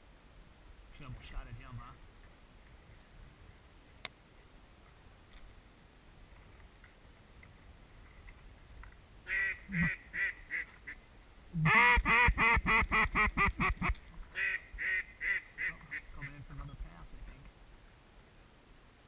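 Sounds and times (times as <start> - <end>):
duck quacking: 9.3 - 11.0, 11.6 - 16.4.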